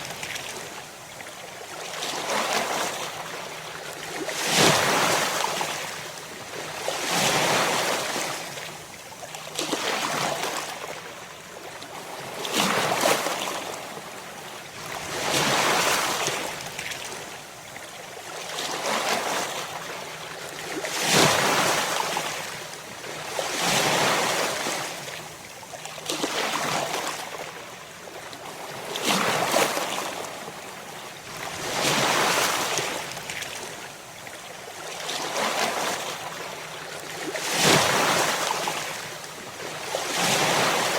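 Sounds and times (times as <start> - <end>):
ocean waves breaking on shore: 0.0 - 17.5, 18.2 - 40.9.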